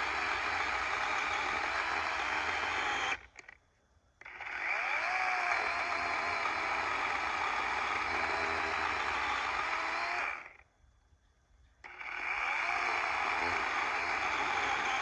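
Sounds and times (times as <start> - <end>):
chainsaw cutting wood: 0.0 - 3.5, 4.2 - 10.6, 11.8 - 15.0.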